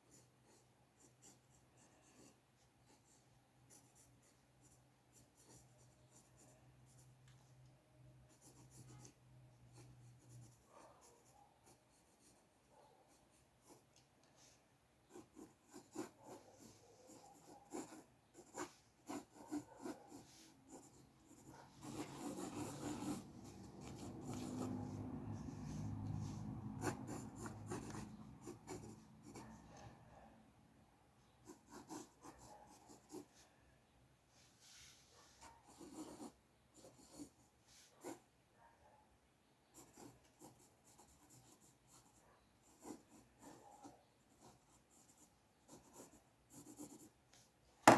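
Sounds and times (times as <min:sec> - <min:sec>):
pencil strokes on paper: 0:08.3 - 0:29.9, 0:34.3 - 0:38.3.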